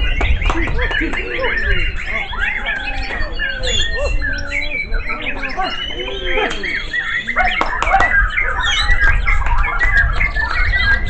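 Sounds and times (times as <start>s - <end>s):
many birds singing: 0.0s - 11.0s.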